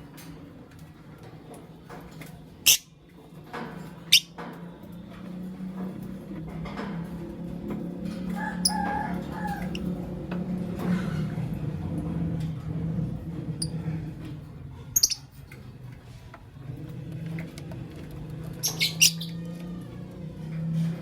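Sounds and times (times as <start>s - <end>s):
lovebirds chirping: 18.6s - 19.4s.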